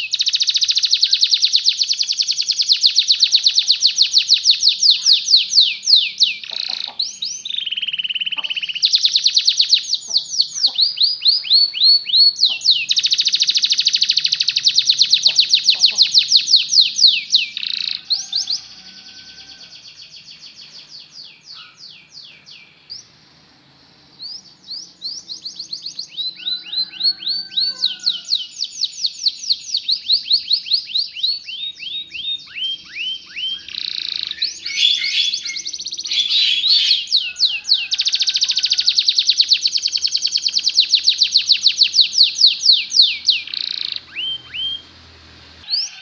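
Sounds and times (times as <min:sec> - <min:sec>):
canary singing trills: 0:00.0 - 0:23.2, 0:24.0 - 0:46.0.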